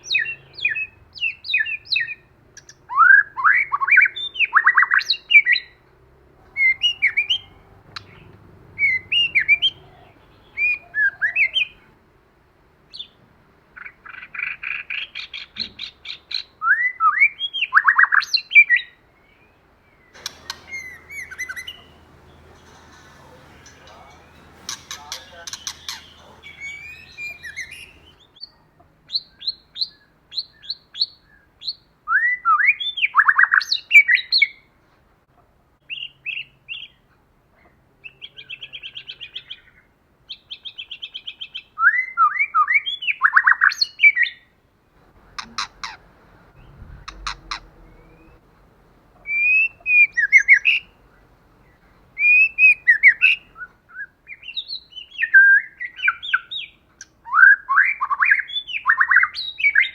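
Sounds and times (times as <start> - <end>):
bird singing whistles and trills: 6.6 - 11.8, 16.7 - 31.4, 49.2 - 50.9, 52.2 - 59.9
sharp clicks: 20.2 - 28.2.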